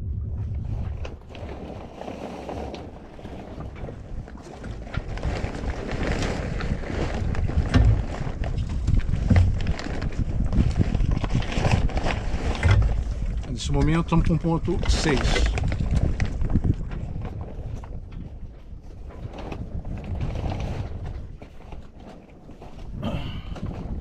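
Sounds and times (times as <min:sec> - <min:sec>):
water washing against hull: 0:00.0 - 0:24.0
wind buffeting microphone: 0:00.0 - 0:24.0.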